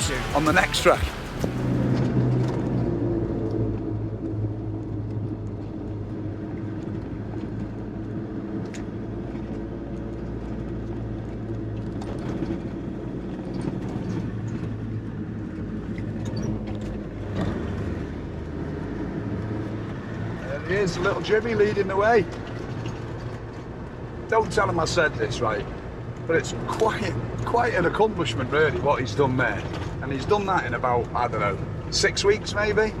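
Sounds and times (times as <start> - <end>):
vehicle engine running: 0.0 - 2.0.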